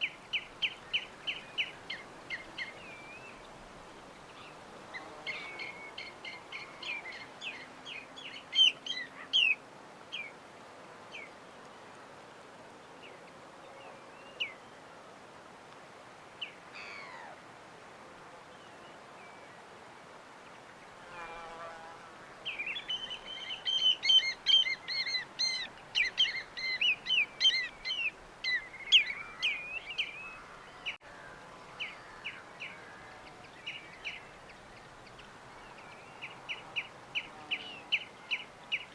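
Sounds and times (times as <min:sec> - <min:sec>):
faint steady hiss: 0:00.0 - 0:38.9
small birds chirping: 0:22.4 - 0:31.0.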